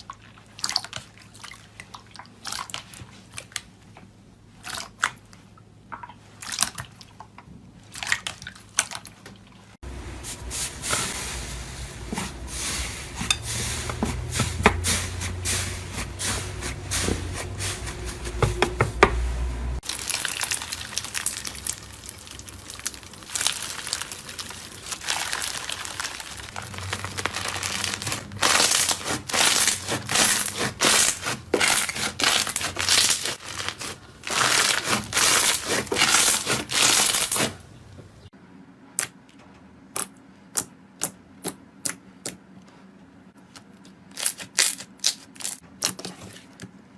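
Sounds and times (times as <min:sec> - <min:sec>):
slime squishing: 0:19.8 - 0:37.6.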